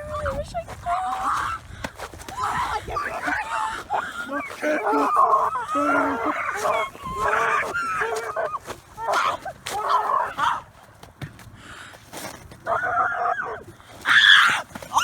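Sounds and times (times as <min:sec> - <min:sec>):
person making animal-like cries: 0:02.4 - 0:10.6.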